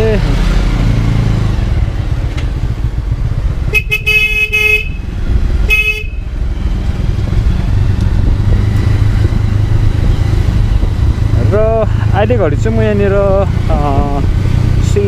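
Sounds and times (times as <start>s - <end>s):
motorcycle running: 0.0s - 15.0s
vehicle horn honking: 3.7s - 5.0s, 5.7s - 6.3s
wind rushing on microphone: 6.5s - 14.8s.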